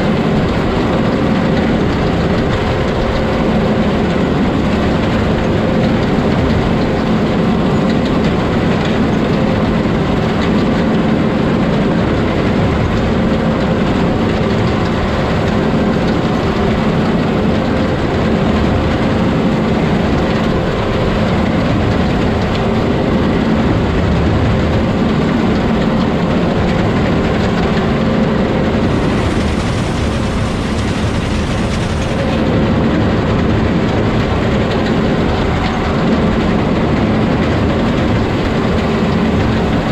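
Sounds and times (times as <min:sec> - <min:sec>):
heavy vehicle engine running: 0:00.0 - 0:39.9.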